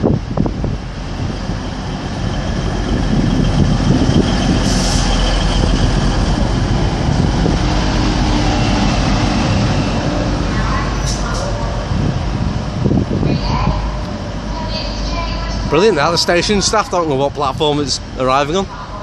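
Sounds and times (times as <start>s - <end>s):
train engine rumble: 0.0s - 19.0s.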